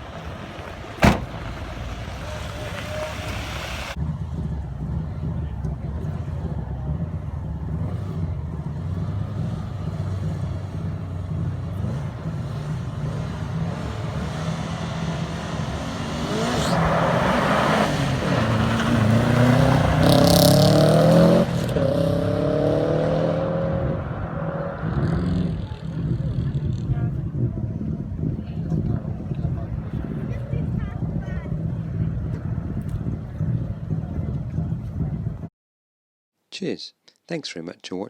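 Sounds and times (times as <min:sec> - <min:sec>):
rally car engine revving: 0:00.0 - 0:27.5.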